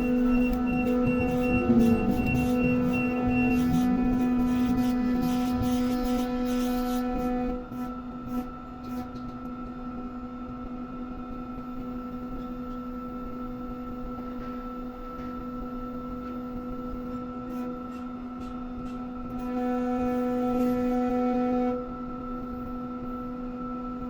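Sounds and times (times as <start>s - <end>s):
hydraulic drive humming: 0.0s - 5.3s.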